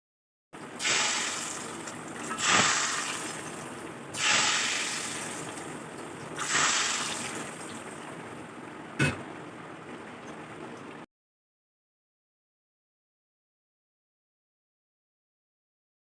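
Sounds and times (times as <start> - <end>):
food sizzling in a pan: 0.8 - 8.2.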